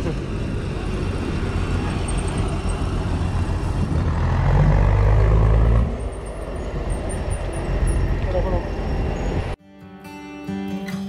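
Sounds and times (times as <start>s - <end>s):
vehicle engine rumbling: 0.0s - 9.6s.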